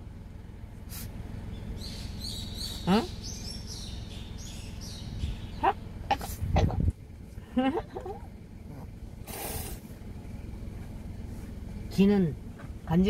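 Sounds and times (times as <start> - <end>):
steady low rumble: 0.0 - 13.0
small birds chirping: 0.8 - 9.8.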